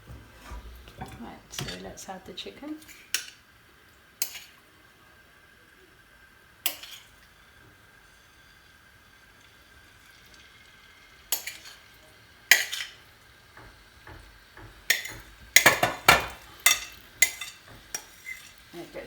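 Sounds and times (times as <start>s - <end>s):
spoon knocking and scraping: 0.4s - 2.0s, 4.2s - 4.6s, 6.7s - 7.2s, 11.3s - 11.9s, 12.5s - 18.7s.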